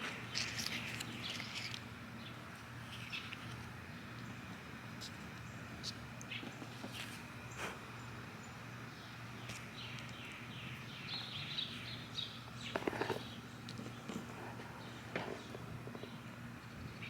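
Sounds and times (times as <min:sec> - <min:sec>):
birds chirping: 0:07.4 - 0:17.0.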